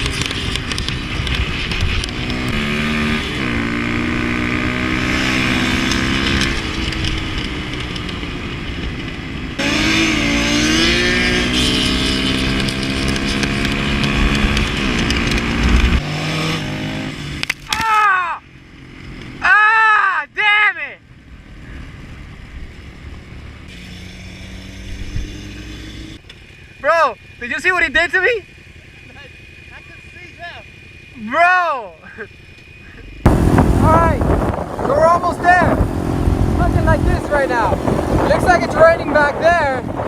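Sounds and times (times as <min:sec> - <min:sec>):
wind rushing over microphone: 0:00.0 - 0:17.1, 0:33.2 - 0:40.0
motorcycle engine revving: 0:00.0 - 0:17.7, 0:21.0 - 0:40.0.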